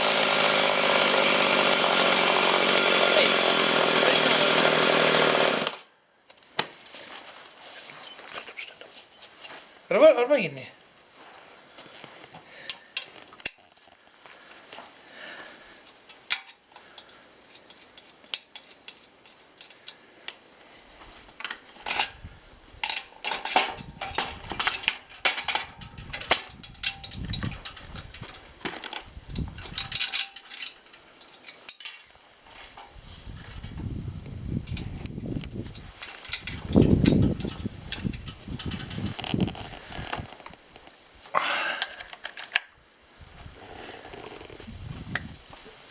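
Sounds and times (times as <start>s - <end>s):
metal parts clinking and clattering: 7.5s - 9.7s, 21.4s - 22.2s, 22.8s - 32.8s, 35.7s - 40.1s.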